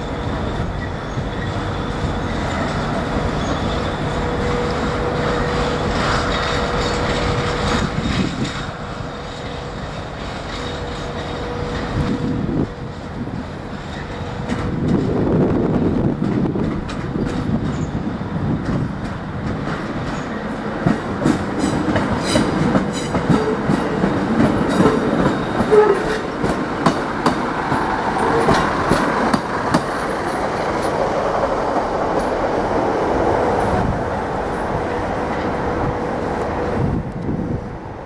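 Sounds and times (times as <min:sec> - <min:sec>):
wheels clicking over rail joints: 0:00.0 - 0:32.9
diesel locomotive engines running: 0:00.0 - 0:38.0.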